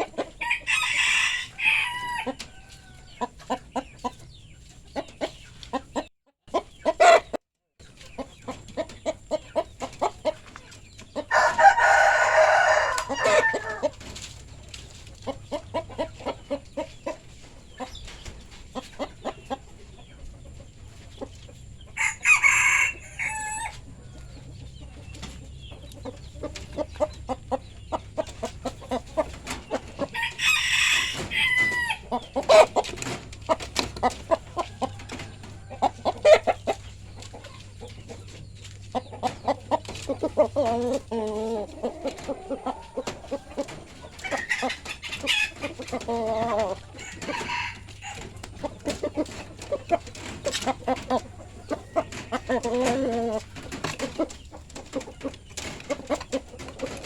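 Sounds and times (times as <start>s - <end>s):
chickens clucking: 0.0s - 57.0s
rooster crowing: 0.4s - 3.1s, 11.3s - 13.9s, 22.0s - 23.8s, 30.2s - 32.0s, 46.9s - 48.3s.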